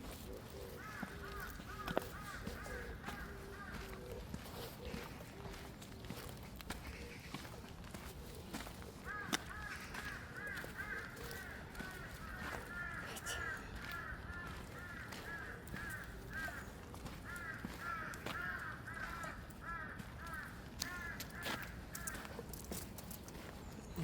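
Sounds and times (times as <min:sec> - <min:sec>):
birds making harsh short calls: 0:00.2 - 0:05.0, 0:09.0 - 0:22.5.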